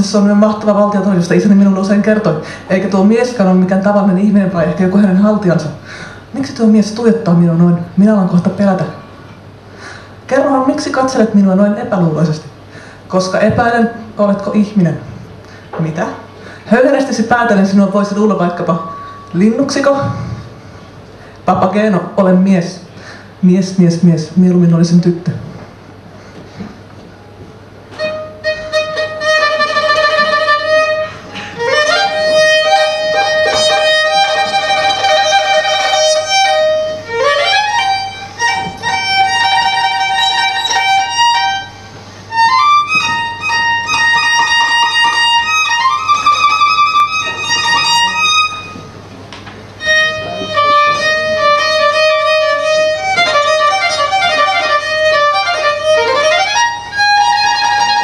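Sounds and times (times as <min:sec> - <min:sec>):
solo violin playing slow phrases: 0:28.0 - 0:48.9, 0:49.8 - 0:58.0.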